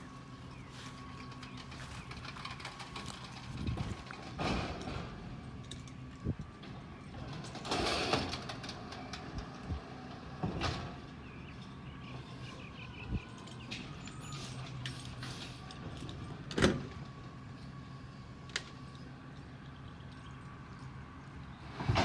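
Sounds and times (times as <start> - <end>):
garbage truck engine running: 0.0 - 22.0
metal clanks and knocks: 1.4 - 5.9.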